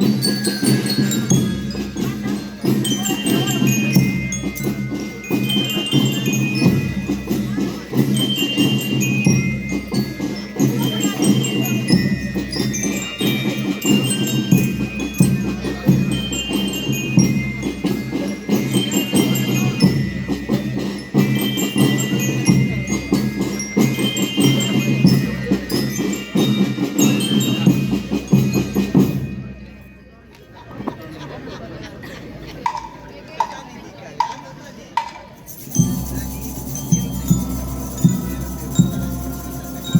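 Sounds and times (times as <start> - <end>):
steady drum beat: 0.0 - 29.4, 35.5 - 39.9
bell lyres playing melody: 0.0 - 31.5, 35.3 - 39.9.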